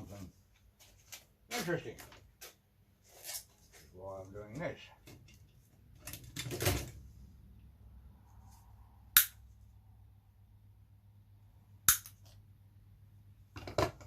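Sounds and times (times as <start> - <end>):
sharp clicks from hand tools: 11.9 - 12.3.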